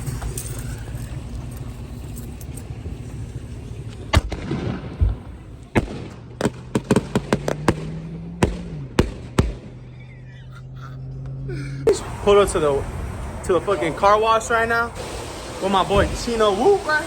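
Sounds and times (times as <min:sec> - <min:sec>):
fireworks bangs: 0:02.9 - 0:09.8.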